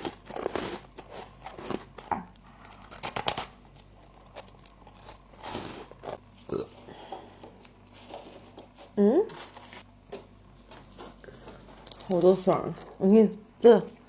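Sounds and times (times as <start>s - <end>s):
frost crunching: 0.0s - 9.9s.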